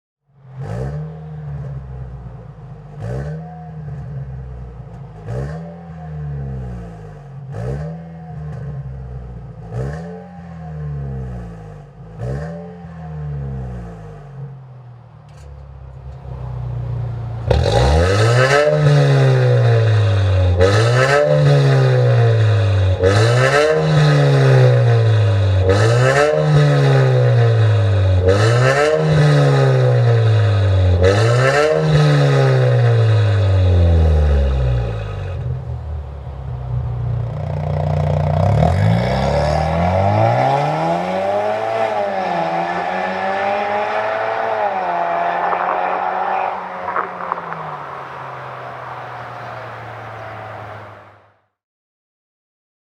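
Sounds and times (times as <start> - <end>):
car engine revving: 0.3 - 51.4.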